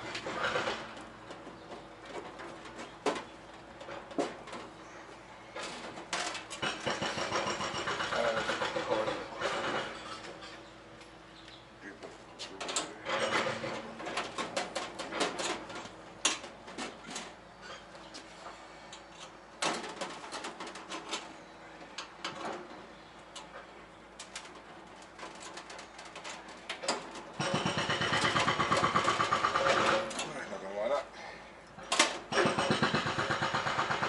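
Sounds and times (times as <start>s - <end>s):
metal parts and tools clanking: 5.6s - 10.7s, 12.4s - 18.2s, 24.2s - 30.5s.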